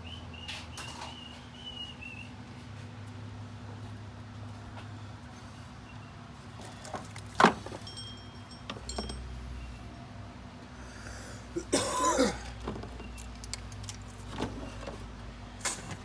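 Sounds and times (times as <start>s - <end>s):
metal tools clinking: 6.6s - 9.6s, 12.6s - 14.4s.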